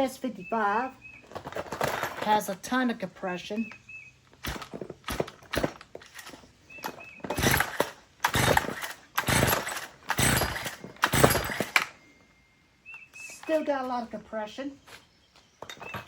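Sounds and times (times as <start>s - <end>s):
recoil starter cord pulls: 4.4s - 12.0s.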